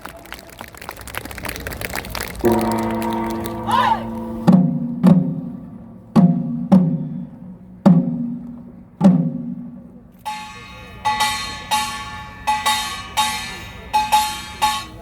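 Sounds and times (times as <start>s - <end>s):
low ringing drum strikes: 2.5s - 15.0s
bright metallic clanging: 10.2s - 15.0s.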